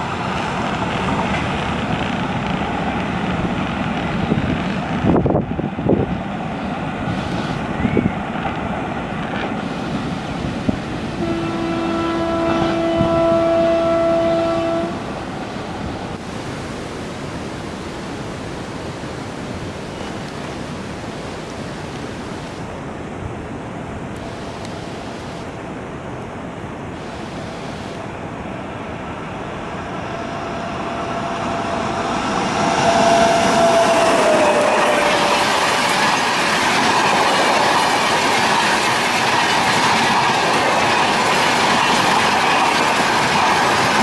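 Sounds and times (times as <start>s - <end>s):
train rushing noise: 0.0s - 44.0s
train horn: 11.1s - 15.3s, 29.4s - 35.9s.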